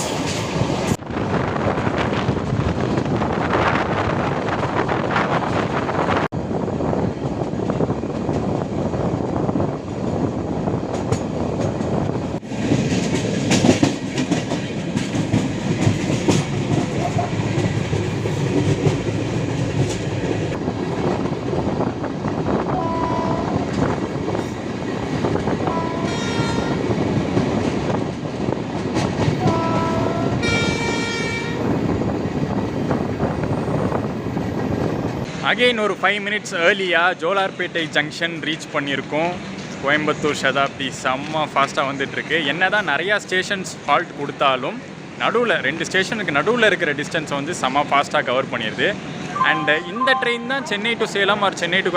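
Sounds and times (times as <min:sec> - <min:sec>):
train wheels clattering on rails: 0:07.0 - 0:22.6, 0:23.6 - 0:35.7
train horn blasts: 0:22.7 - 0:23.8, 0:25.6 - 0:26.9, 0:29.4 - 0:31.7.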